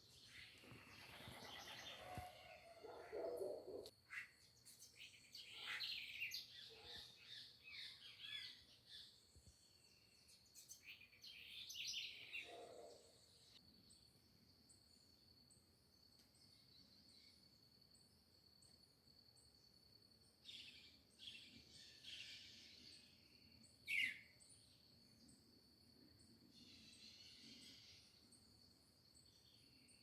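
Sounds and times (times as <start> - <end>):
small birds chirping: 0.0 - 15.2, 20.4 - 25.5.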